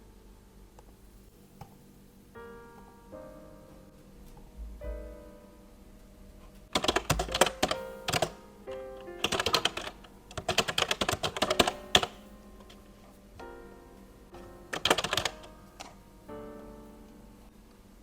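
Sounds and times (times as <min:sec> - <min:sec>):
soft piano music: 0:00.0 - 0:01.3, 0:02.1 - 0:18.0
rapid typing on keyboard: 0:06.7 - 0:08.4, 0:09.1 - 0:12.2, 0:14.7 - 0:16.0.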